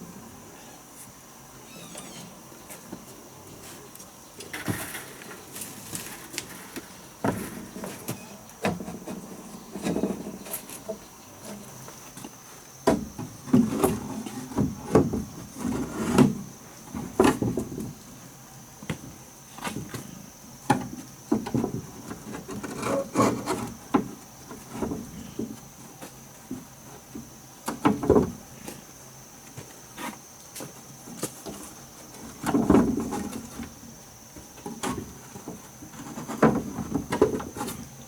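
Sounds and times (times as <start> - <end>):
wood knocking and scraping: 5.9 - 11.6.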